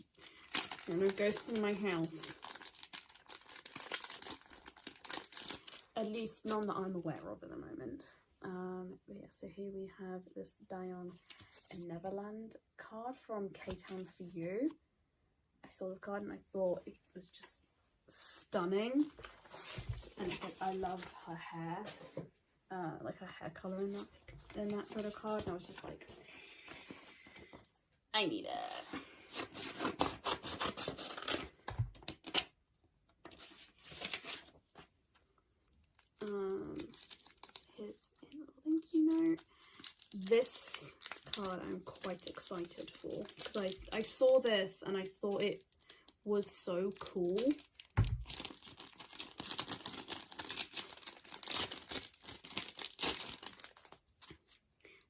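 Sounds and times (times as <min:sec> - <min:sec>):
plastic packaging crinkling: 0:00.0 - 0:06.0, 0:35.9 - 0:44.5, 0:45.1 - 0:54.6
packaging rubbing and scraping: 0:47.0 - 0:54.0.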